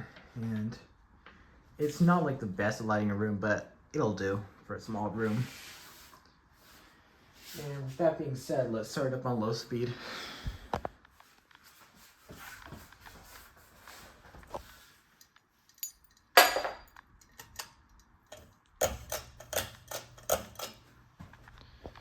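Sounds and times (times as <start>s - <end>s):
metal chain clinking: 15.2s - 20.9s.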